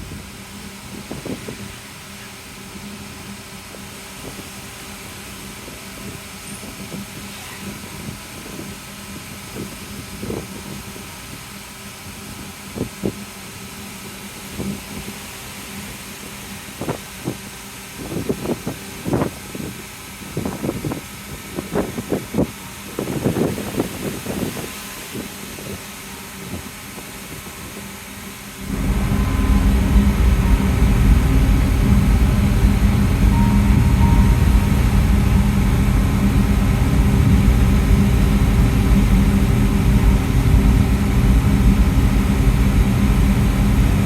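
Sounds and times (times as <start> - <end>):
ferry engines humming: 0.0 - 44.0
wind buffeting microphone: 18.0 - 25.8, 28.6 - 44.0.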